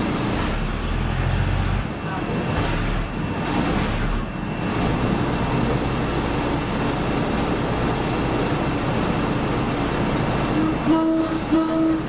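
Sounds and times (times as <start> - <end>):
diesel railcar rumbling: 0.0 - 12.0.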